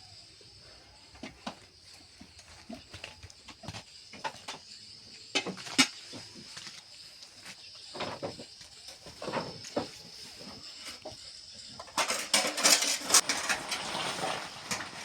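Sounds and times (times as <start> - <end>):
pots and utensils clinking: 11.8 - 15.0.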